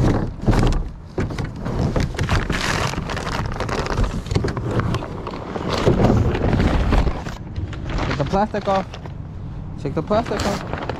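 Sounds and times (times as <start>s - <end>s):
plastic wrapping crinkling: 0.0s - 9.3s, 10.0s - 10.9s.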